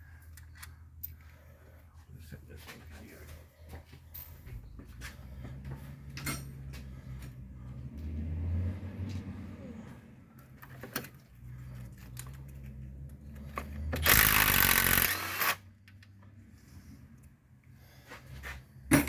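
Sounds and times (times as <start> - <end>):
impact wrench spinning bolt: 14.0 - 15.6.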